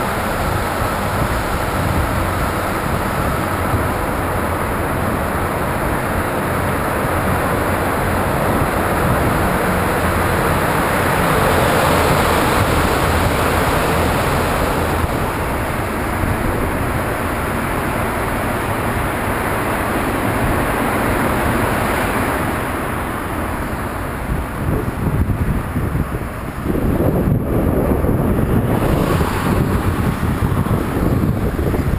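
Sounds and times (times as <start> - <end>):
highway road noise: 0.0 - 31.9
wind on microphone: 0.0 - 31.9.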